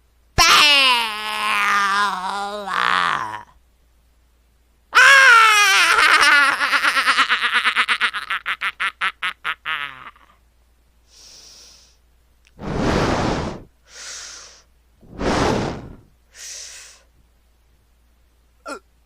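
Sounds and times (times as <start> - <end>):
person heavy breathing: 11.1 - 12.0, 12.6 - 17.1.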